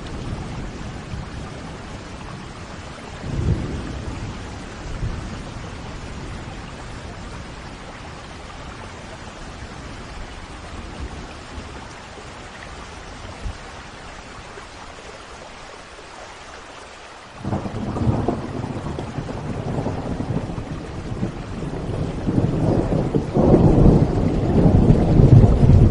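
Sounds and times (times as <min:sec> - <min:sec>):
steady rain: 0:00.0 - 0:25.9
thunder clap and rumbling: 0:03.2 - 0:08.5, 0:17.4 - 0:25.9.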